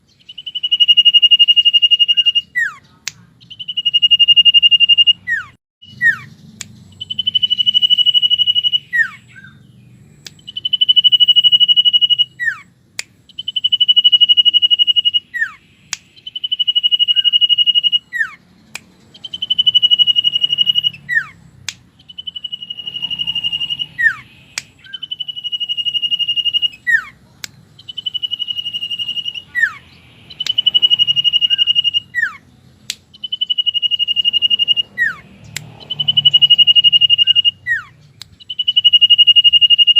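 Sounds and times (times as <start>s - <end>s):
bird singing high whistle: 0.0s - 39.9s
sharp clicks: 10.2s - 12.2s, 12.9s - 13.9s, 14.7s - 26.8s, 27.4s - 29.4s, 30.3s - 32.0s, 32.7s - 39.9s.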